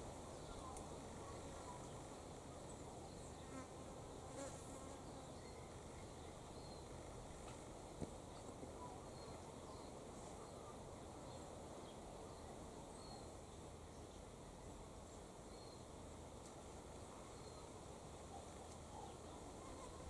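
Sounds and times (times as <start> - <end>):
faint background hiss: 0.0 - 20.0.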